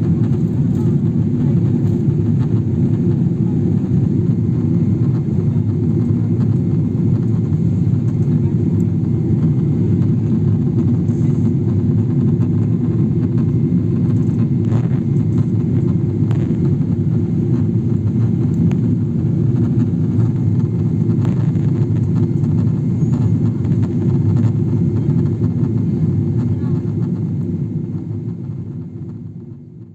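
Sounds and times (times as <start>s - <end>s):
airliner cabin engine rumble: 0.0s - 29.9s.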